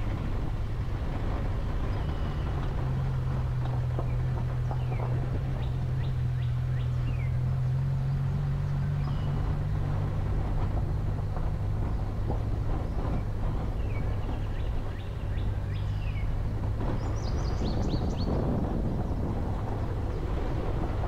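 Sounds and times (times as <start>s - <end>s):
vehicle engine on gravel track: 0.0s - 21.0s
small birds chirping: 4.0s - 9.5s, 12.8s - 18.4s.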